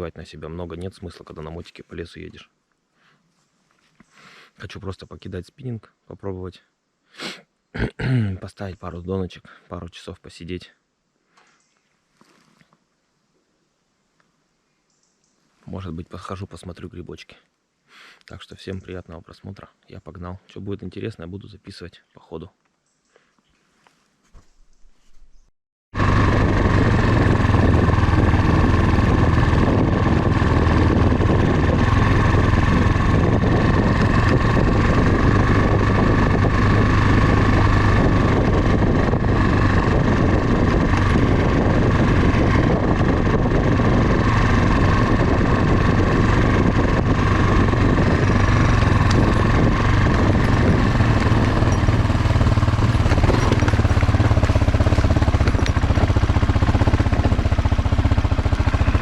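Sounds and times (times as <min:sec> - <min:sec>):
motorcycle engine running: 0:26.0 - 0:59.0.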